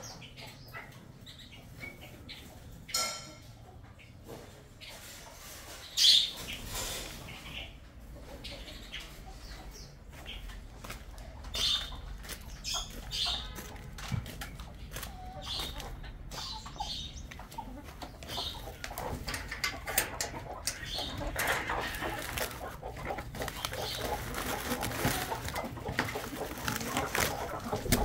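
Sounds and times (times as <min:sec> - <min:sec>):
birds chirping: 0:00.0 - 0:28.0
footsteps and handling: 0:09.0 - 0:28.0.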